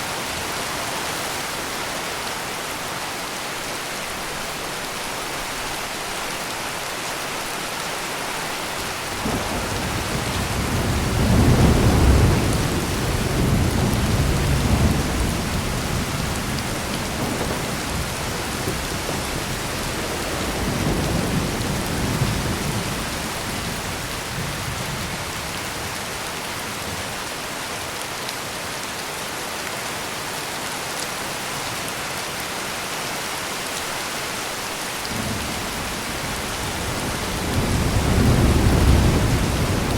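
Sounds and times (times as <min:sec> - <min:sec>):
heavy rain pouring: 0:00.0 - 0:39.9
rolling thunder: 0:09.2 - 0:25.2, 0:35.1 - 0:39.9.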